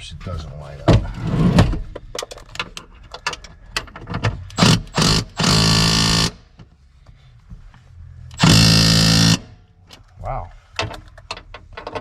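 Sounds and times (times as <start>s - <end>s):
cordless impact driver running: 4.6s - 6.4s, 8.4s - 9.6s.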